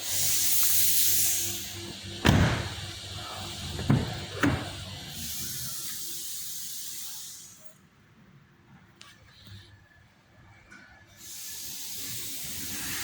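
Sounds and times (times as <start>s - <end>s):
hissing spray: 0.0s - 7.6s, 11.2s - 13.0s
sharp knocks: 2.2s - 2.9s, 3.8s - 4.8s
sharp thump: 2.2s - 2.9s.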